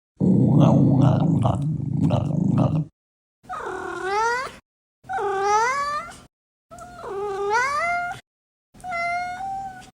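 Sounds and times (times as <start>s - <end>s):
cat meowing: 8.8s - 9.9s.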